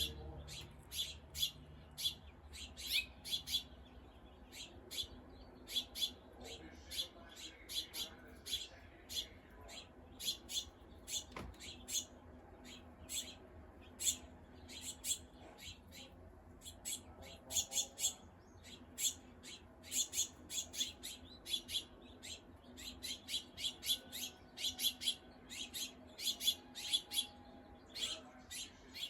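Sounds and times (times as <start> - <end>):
small birds chipping and calling: 0.0 - 29.0.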